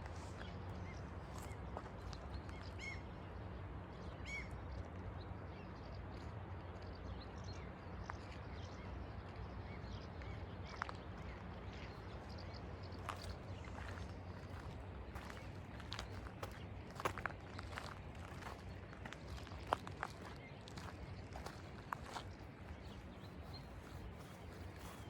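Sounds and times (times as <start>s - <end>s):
light footsteps clicking: 13.0s - 25.0s.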